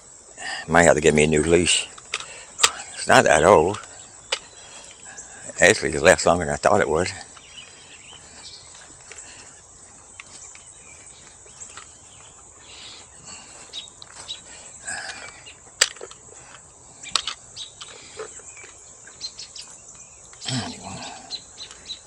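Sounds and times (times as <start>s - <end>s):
insects droning: 0.0s - 22.0s
bird chirps: 0.6s - 22.0s
sharp clicks: 15.0s - 20.5s.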